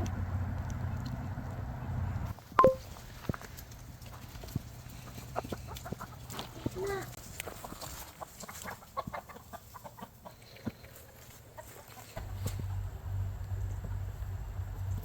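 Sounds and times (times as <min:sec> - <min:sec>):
chickens clucking: 0:04.0 - 0:12.9
steady low hum: 0:12.2 - 0:15.0.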